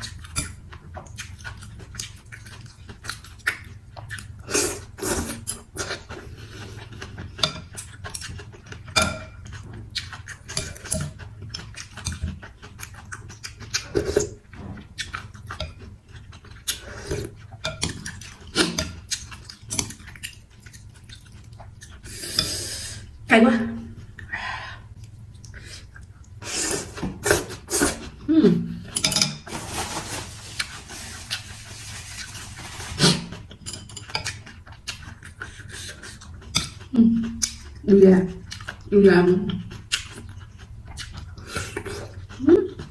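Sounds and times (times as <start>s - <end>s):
chewing: 5.4s - 22.5s, 30.6s - 37.8s, 38.4s - 38.9s, 39.5s - 42.9s
slurping: 29.5s - 33.5s.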